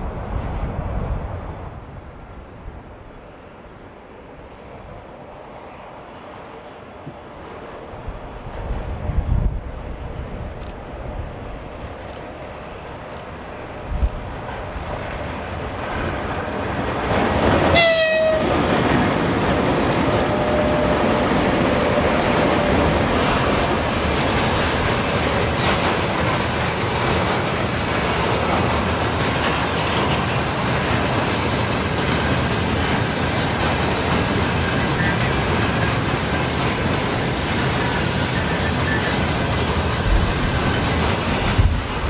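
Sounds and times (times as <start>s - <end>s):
train wheels rumbling on rails: 0.0s - 42.0s
locomotive horn blast: 17.7s - 18.8s, 20.2s - 23.0s.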